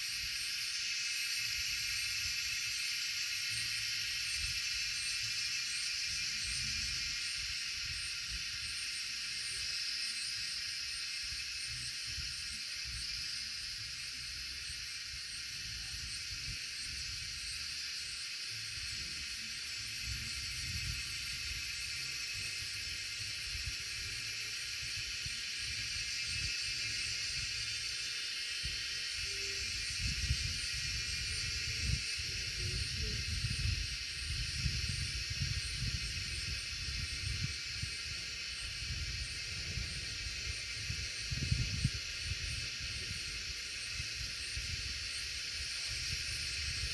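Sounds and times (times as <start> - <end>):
high-pitched hiss: 0.0 - 46.9
wind buffeting microphone: 29.6 - 46.9.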